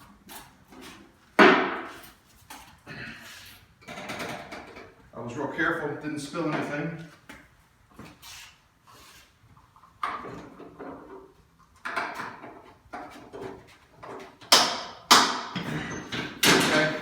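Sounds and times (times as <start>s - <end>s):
handling scrapes and knocks: 0.0s - 2.8s.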